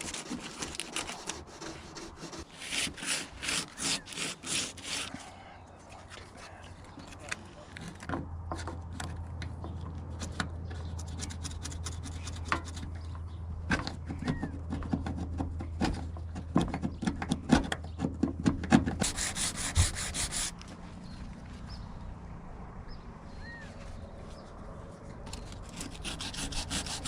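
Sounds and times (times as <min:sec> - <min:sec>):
scraping and rubbing by hand: 0:00.0 - 0:09.2, 0:10.0 - 0:16.2, 0:18.8 - 0:21.0, 0:23.7 - 0:27.0.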